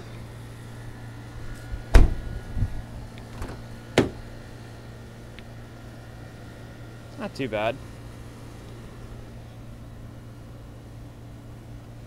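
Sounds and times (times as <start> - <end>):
steady low hum: 0.0 - 12.0
sharp knocks and clunks: 3.4 - 4.2.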